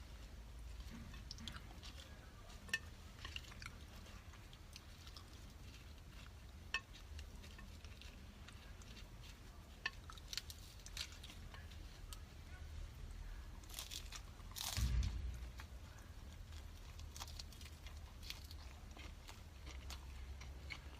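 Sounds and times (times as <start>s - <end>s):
person chewing food: 0.0s - 12.5s, 13.2s - 20.9s
low hum: 14.4s - 17.5s.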